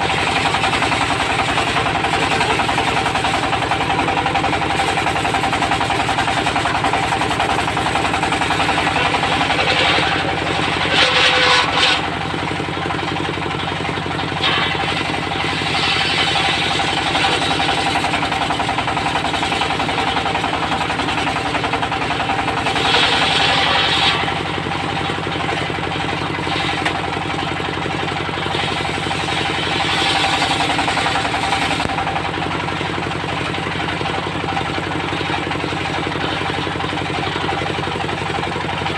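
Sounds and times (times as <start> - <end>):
diesel engine running: 0.0 - 38.9
saw blade cutting wood: 0.1 - 24.7, 26.3 - 27.4, 28.4 - 32.2.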